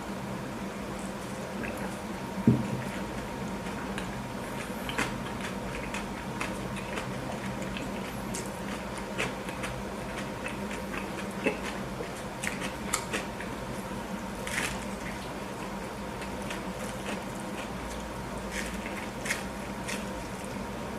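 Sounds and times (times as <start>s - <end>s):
faint steady hum: 0.0s - 20.9s
chewing with wet mouth clicks: 2.8s - 13.6s.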